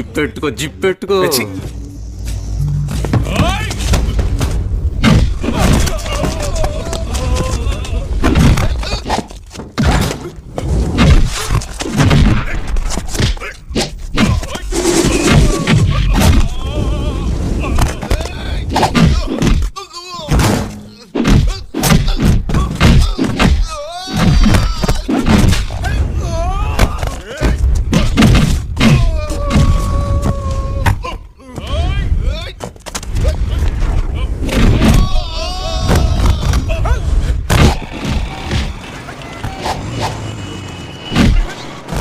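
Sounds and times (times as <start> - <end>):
film music: 0.0 - 6.0
fighters grunting and crying: 5.0 - 9.4, 11.1 - 32.6, 33.2 - 38.8
punch and kick thuds: 20.4 - 25.7, 27.8 - 29.8.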